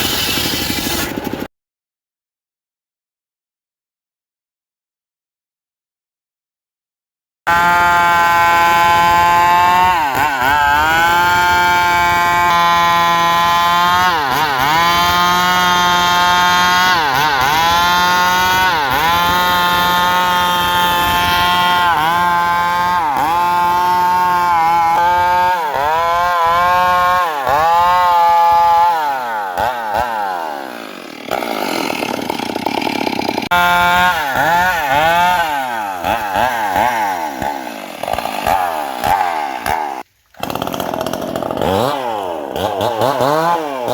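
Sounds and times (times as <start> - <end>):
circular saw cutting wood: 0.0 - 1.5, 7.5 - 43.9.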